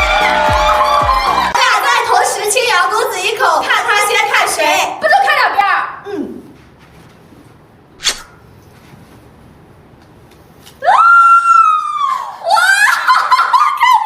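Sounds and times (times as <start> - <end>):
short whoosh: 8.0 - 8.4.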